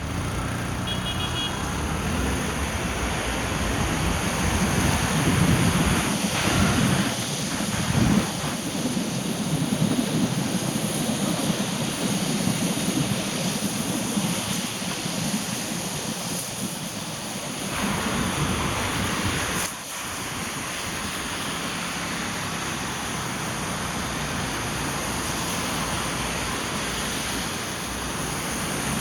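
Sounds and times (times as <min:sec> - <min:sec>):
car driving in rain: 0:00.0 - 0:07.2, 0:17.7 - 0:29.0.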